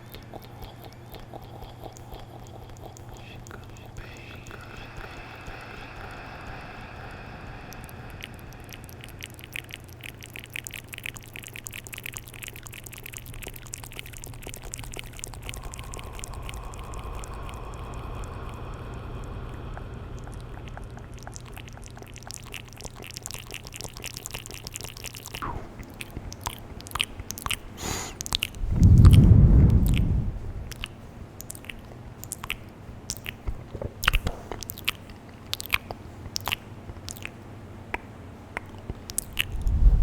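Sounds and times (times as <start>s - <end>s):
wet mouth clicks and lip smacks: 0.0s - 5.2s, 7.7s - 18.6s, 20.2s - 40.0s
steady low hum: 0.0s - 40.0s.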